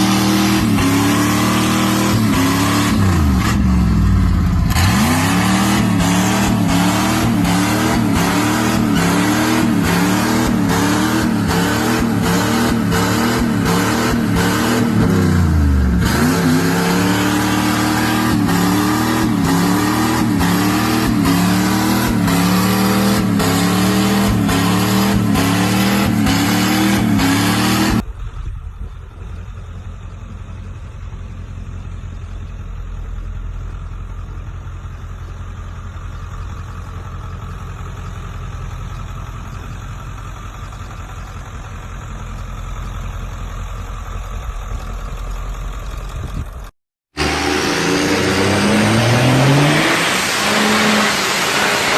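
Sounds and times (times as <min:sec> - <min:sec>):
truck engine revving: 0:00.0 - 0:28.2, 0:46.3 - 0:51.9
engine running with low rumble: 0:00.0 - 0:49.7.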